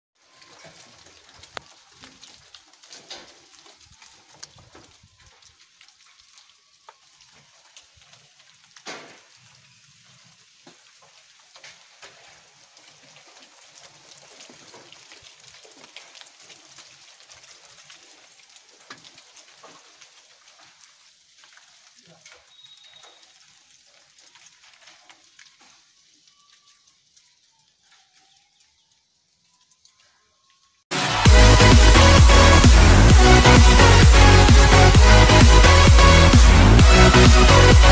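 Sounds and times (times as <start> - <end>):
rain hissing: 0.2 - 37.9.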